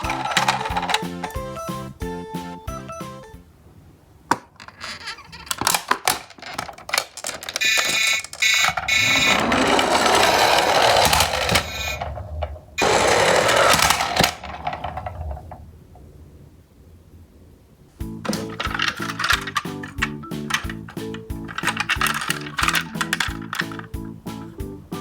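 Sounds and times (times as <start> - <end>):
plastic toy wheels rolling: 0.0 - 1.6, 4.3 - 15.7, 18.2 - 24.5
toy trucks clattering: 0.0 - 2.0, 4.3 - 15.6, 18.2 - 24.6
electronic toy beeping: 0.0 - 3.3, 7.6 - 12.0.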